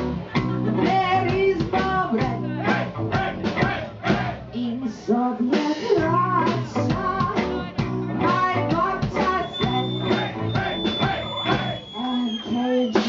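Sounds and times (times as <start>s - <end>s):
drums: 0.0s - 13.0s
person singing: 0.4s - 3.8s, 4.6s - 10.8s
electric guitar: 6.0s - 11.3s.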